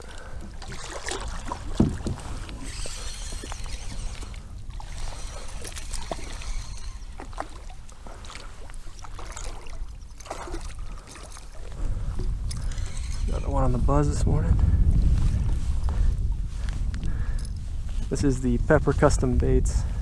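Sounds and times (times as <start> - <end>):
water sloshing and splashing: 0.0 - 14.3
knocks and clicks from hull: 0.7 - 2.8
low thump: 1.7 - 2.3.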